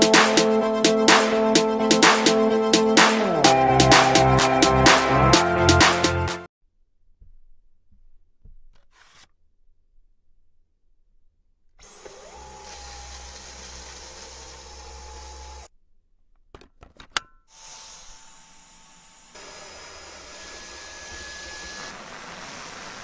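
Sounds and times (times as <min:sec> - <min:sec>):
vacuum cleaner motor whining: 0:11.8 - 0:15.7, 0:17.8 - 0:23.0.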